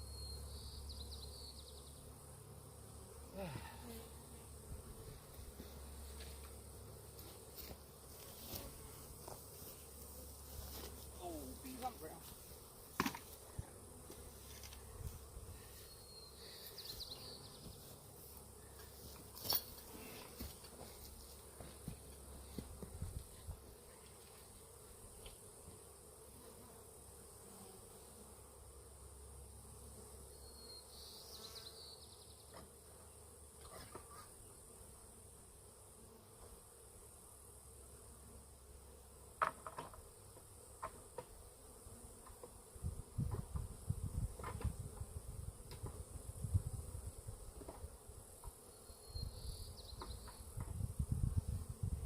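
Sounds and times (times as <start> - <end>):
honeybees buzzing: 0.4 - 52.0.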